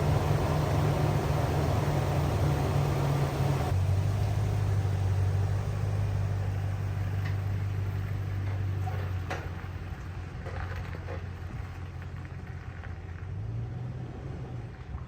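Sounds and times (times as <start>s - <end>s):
car engine droning: 0.0s - 10.7s.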